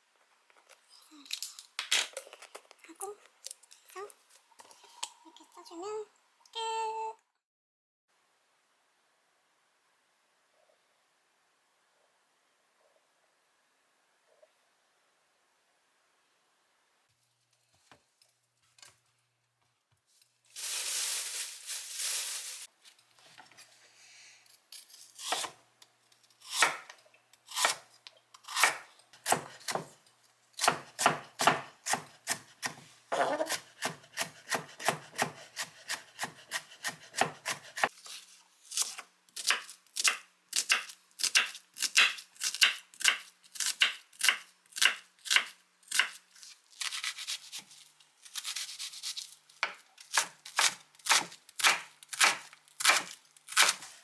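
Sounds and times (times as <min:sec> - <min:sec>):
knife chopping on cutting board: 0:28.5 - 0:29.9, 0:30.6 - 0:37.9, 0:50.1 - 0:53.8.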